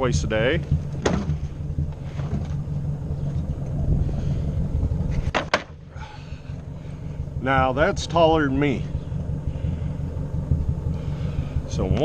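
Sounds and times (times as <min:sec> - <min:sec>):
tractor engine rumbling: 0:00.0 - 0:12.0
sharp knocks: 0:00.7 - 0:02.5.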